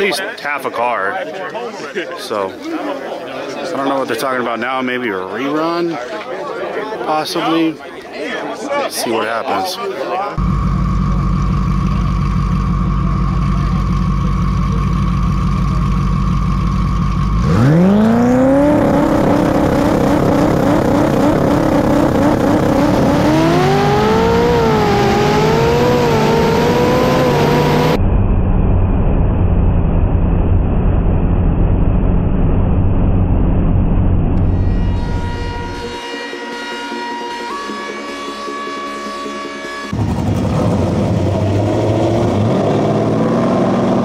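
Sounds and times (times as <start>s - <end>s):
race car engine revving: 10.4s - 28.0s, 39.9s - 44.0s
muffled engine and road noise: 10.4s - 36.0s.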